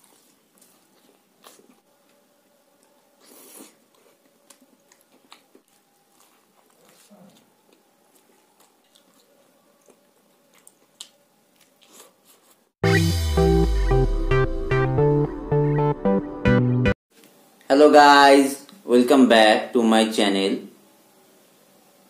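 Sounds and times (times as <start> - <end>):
person chewing food: 0.0 - 12.7.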